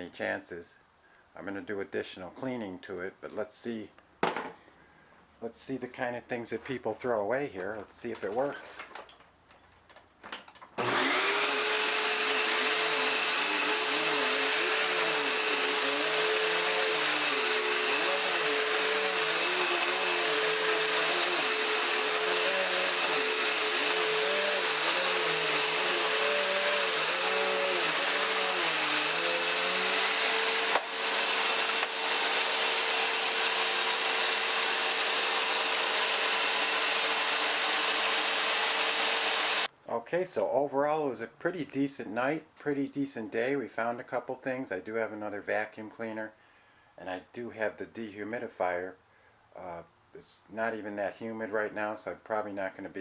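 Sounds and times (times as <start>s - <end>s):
vacuum cleaner humming: 10.8s - 39.7s.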